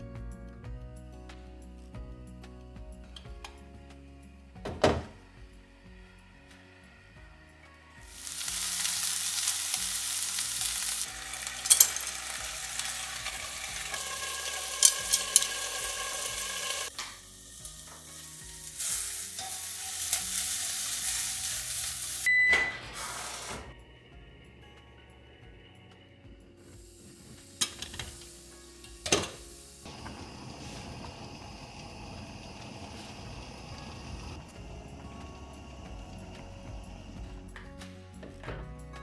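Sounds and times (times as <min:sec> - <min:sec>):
food sizzling in a pan: 0:08.0 - 0:23.5, 0:26.6 - 0:37.2
utensil clicking against pan: 0:14.8 - 0:16.0.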